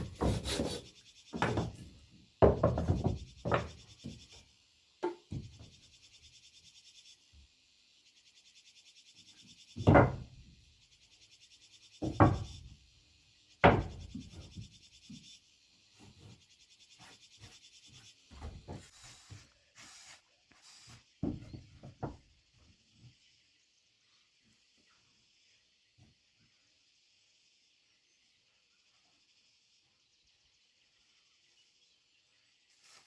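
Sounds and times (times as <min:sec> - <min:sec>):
timber pieces knocking together: 0:00.0 - 0:04.2, 0:09.8 - 0:10.4.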